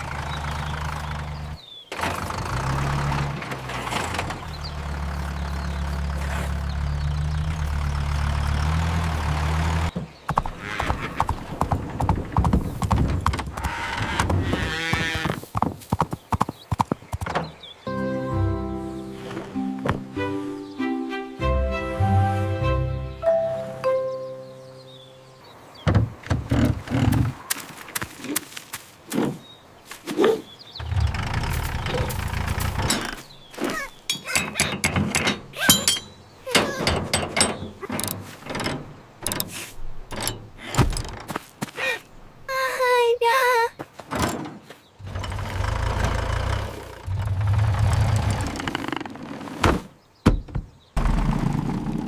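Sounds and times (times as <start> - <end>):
sharp clicks and clattering knocks: 11.3 - 14.4, 30.8 - 33.2, 34.0 - 41.4
held musical chord: 17.9 - 25.4.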